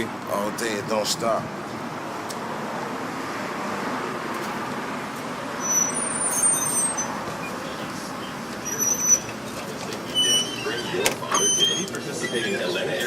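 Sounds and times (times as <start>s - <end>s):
road traffic noise: 0.0s - 13.0s
high-pitched squeals: 5.5s - 7.8s, 8.6s - 13.0s.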